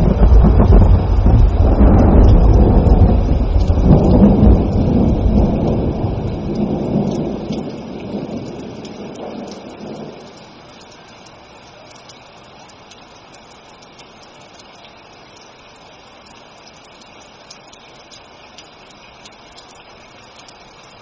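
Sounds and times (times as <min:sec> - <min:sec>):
long roll of thunder: 0:00.0 - 0:10.6
rain falling: 0:00.0 - 0:21.0.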